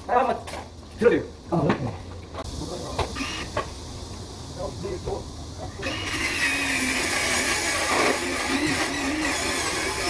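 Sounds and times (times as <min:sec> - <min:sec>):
power tool motor whirring: 0:03.2 - 0:03.6, 0:05.8 - 0:10.0.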